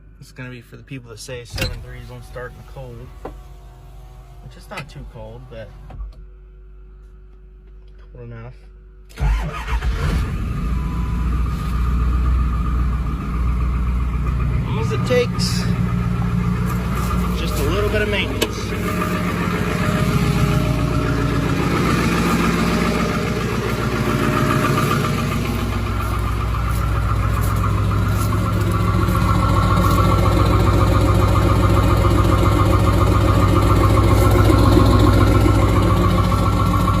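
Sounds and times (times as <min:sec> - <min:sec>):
diesel engine idling with clatter: 0:01.0 - 0:06.2, 0:09.2 - 0:37.0.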